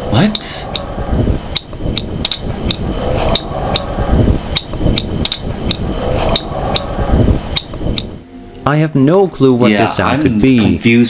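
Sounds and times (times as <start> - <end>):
low rumbling noise: 0.0 - 11.0
sharp clicks: 1.5 - 3.9, 4.5 - 6.9, 7.6 - 8.1.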